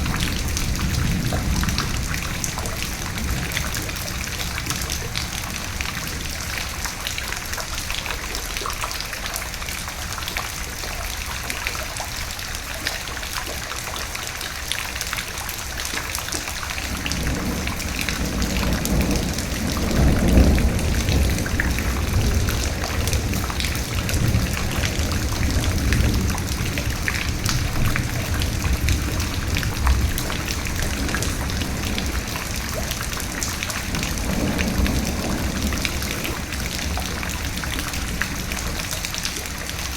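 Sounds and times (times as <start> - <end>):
thunder rumbling: 0.0 - 7.7, 16.6 - 39.9
rain falling: 0.0 - 39.9.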